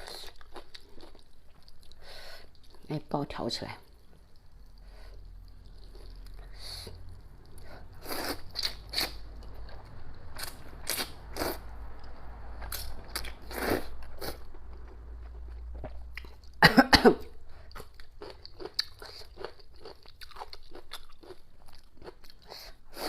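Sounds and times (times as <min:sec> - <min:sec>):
close chewing and biting: 0:04.2 - 0:16.6, 0:17.6 - 0:22.8.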